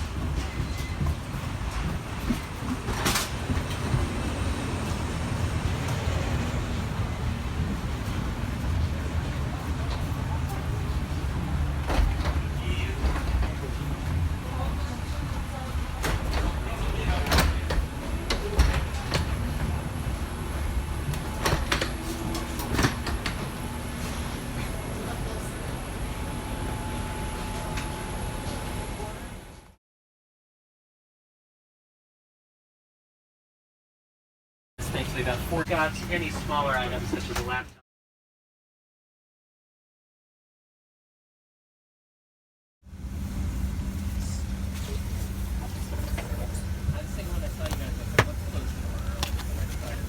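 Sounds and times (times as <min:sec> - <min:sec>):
airliner low rumble: 0:00.0 - 0:29.7, 0:42.9 - 0:50.0.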